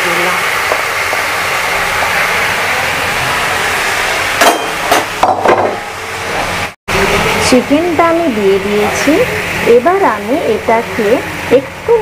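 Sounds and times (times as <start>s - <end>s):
chicken sizzling in hot oil: 0.0s - 5.2s, 6.0s - 12.0s
utensils knocking against pan: 4.4s - 5.8s.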